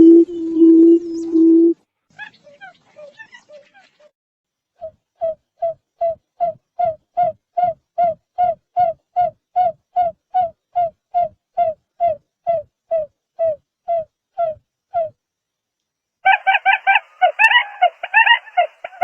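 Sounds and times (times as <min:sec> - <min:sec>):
bird hooting calls: 0:16.3 - 0:19.0.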